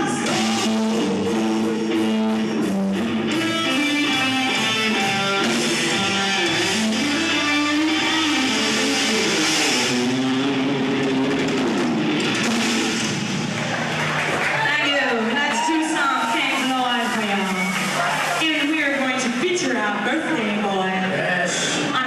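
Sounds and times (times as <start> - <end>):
electric guitar melody: 0.0 - 14.4
rock band playing: 0.0 - 20.1.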